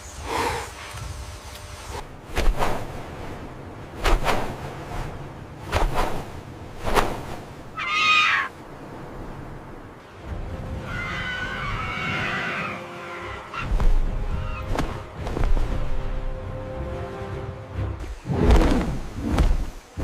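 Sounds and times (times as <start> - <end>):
background music: 9.8 - 19.4.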